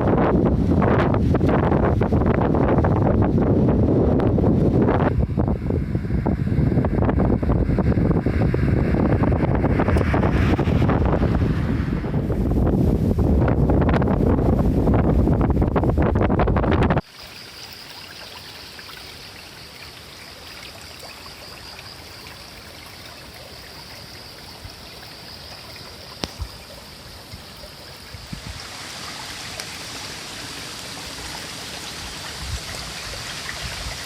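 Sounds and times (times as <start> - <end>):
steady rushing noise: 0.0 - 17.8.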